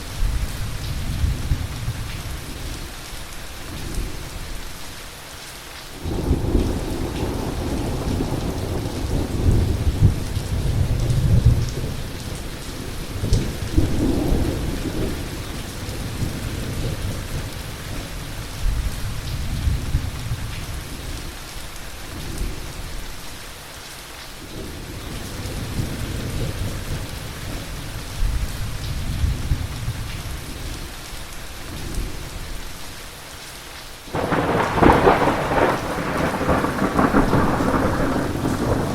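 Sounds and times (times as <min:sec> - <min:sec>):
heavy rain hissing: 0:00.0 - 0:38.9
rolling thunder: 0:06.1 - 0:20.5, 0:34.1 - 0:38.9.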